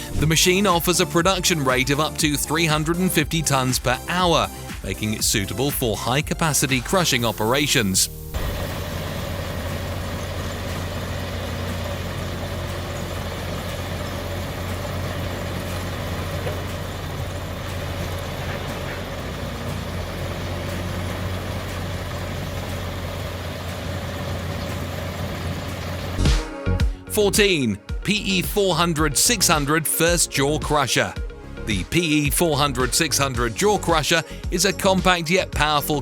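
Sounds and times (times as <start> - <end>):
crusher machine drone: 0.0 - 3.4, 7.1 - 26.4.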